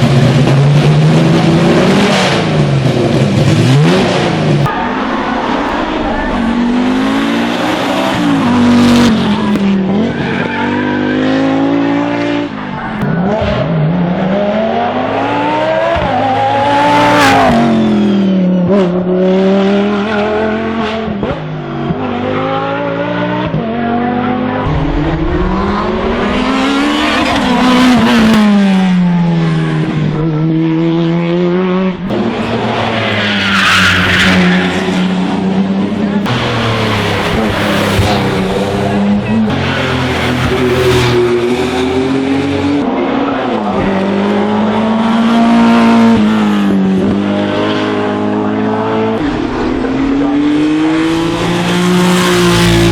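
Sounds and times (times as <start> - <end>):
racing car engine revving: 0.0 - 52.9.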